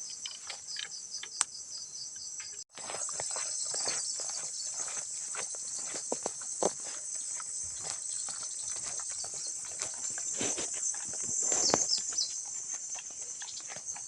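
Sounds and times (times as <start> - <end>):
crickets and insects chirping: 0.0 - 14.0
soft crunches and rustles: 2.7 - 14.0.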